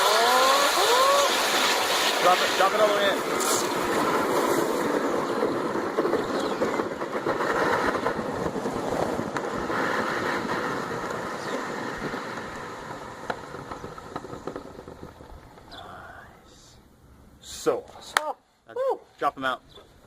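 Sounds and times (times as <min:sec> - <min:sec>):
hot metal sizzling in water: 0:00.0 - 0:04.8.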